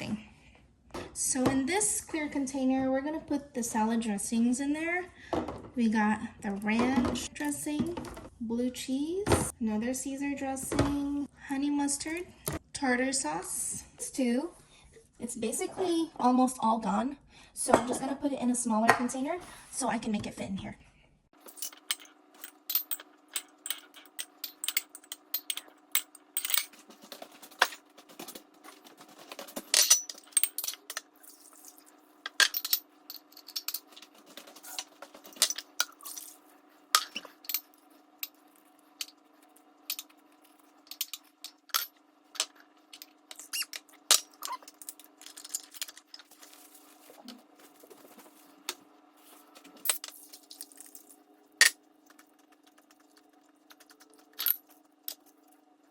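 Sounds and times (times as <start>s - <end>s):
faint steady hum: 0.0s - 55.9s
bottles and containers clinking: 21.4s - 38.4s.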